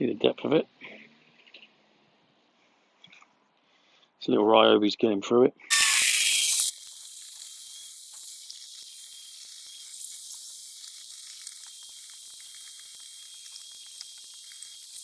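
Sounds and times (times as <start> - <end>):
small clicks and ticks: 6.4 - 15.0.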